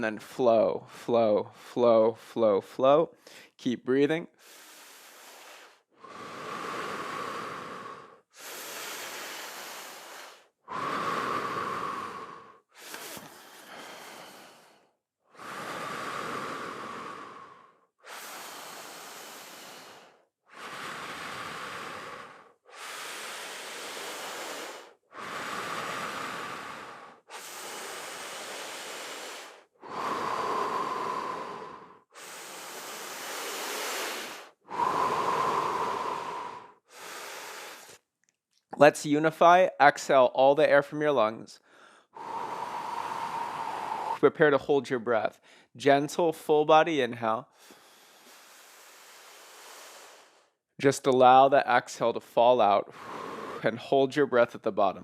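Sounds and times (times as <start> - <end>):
person breathing deeply: 0.8 - 2.4, 3.2 - 3.6, 4.3 - 38.0, 41.6 - 44.4, 45.3 - 45.8, 47.4 - 50.6, 52.8 - 53.9.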